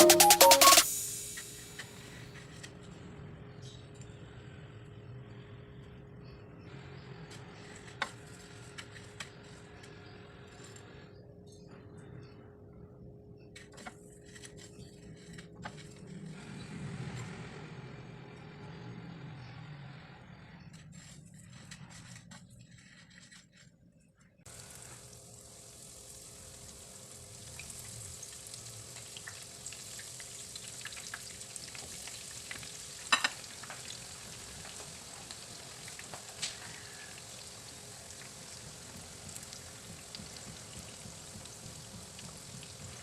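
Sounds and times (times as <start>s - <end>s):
food frying in hot oil: 24.5s - 43.0s.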